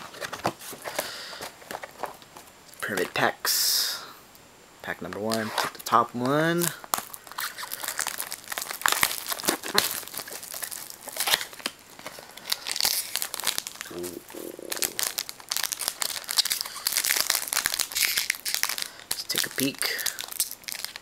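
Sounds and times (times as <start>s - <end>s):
wrapper tearing and crinkling: 6.6s - 21.0s.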